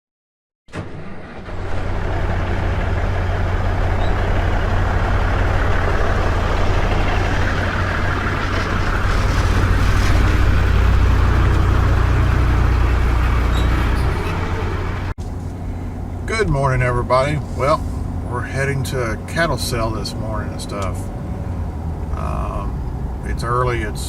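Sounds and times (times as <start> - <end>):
engine drone: 0.7 - 24.0
road and tyre noise: 0.7 - 24.0.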